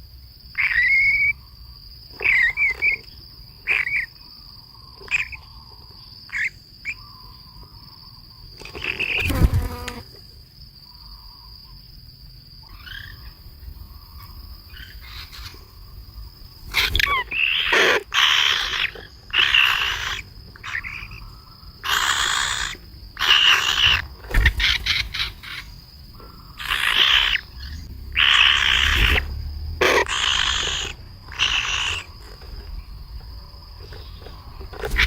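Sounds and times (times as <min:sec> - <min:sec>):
high-pitched insect drone: 0:17.0 - 0:35.0.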